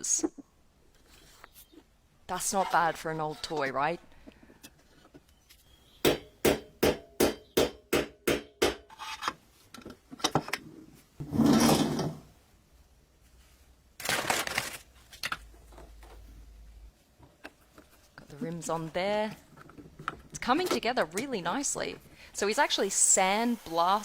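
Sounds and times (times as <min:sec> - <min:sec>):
rubbing or scraping: 0:11.2 - 0:12.3.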